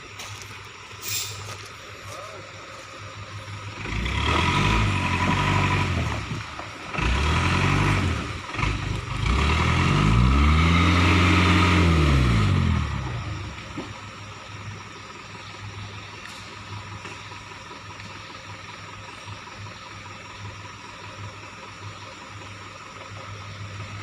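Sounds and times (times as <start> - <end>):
vehicle engine revving: 3.4 - 14.0.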